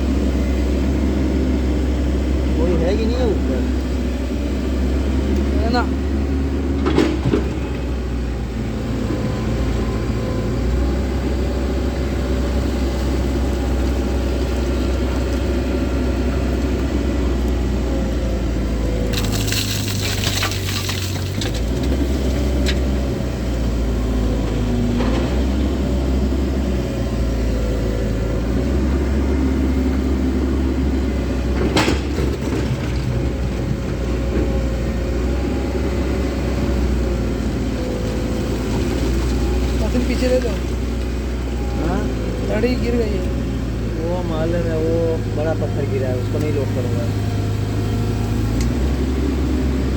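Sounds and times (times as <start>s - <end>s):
excavator engine and hydraulics: 0.0s - 49.9s
rock and soil crashing: 19.1s - 22.7s.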